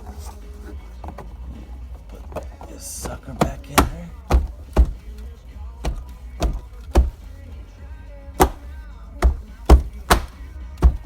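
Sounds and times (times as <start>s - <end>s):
music with heavy beat: 3.1s - 11.0s.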